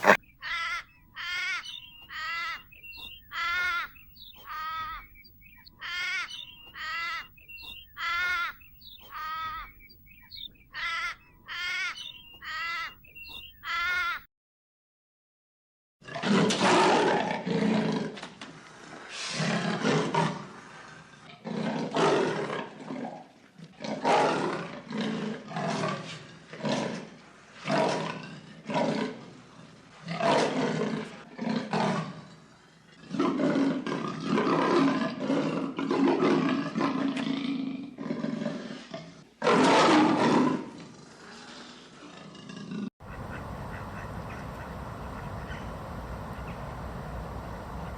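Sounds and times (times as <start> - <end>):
big cat roaring: 16.0 - 18.2.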